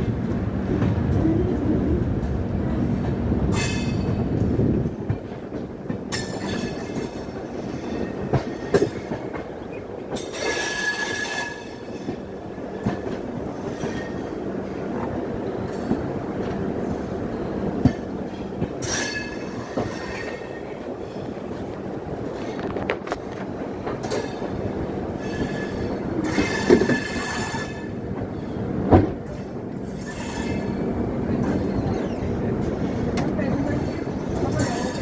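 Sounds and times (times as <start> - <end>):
train rumbling on rails: 0.0 - 35.0
train wheels squealing: 9.7 - 12.3, 25.2 - 28.0, 29.8 - 30.8, 31.4 - 32.4.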